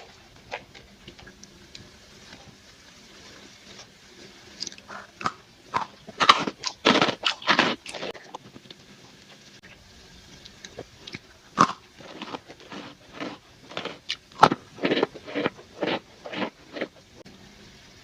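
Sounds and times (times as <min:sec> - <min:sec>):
biscuit sticks crunching: 0:04.6 - 0:08.4, 0:10.6 - 0:17.0.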